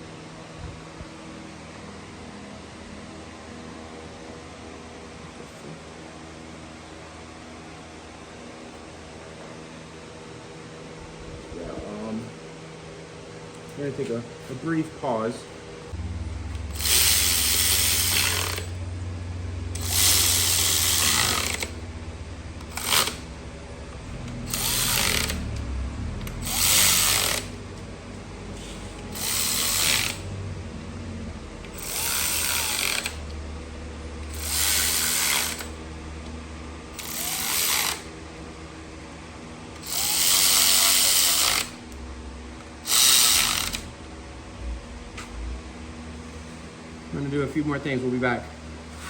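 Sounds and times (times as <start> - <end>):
steady low hum: 0.0 - 49.0
powered ratchet running: 16.5 - 18.8, 19.7 - 21.9, 22.5 - 27.9, 28.6 - 30.5, 31.6 - 33.4, 34.2 - 35.8, 36.9 - 38.1, 39.8 - 41.8, 42.8 - 43.9.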